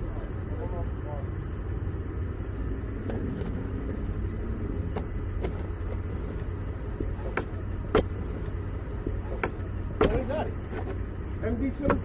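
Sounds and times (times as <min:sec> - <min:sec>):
vehicle engine idling: 0:00.0 - 0:12.0
sharp clicks and knocks: 0:04.9 - 0:11.0, 0:11.8 - 0:12.0.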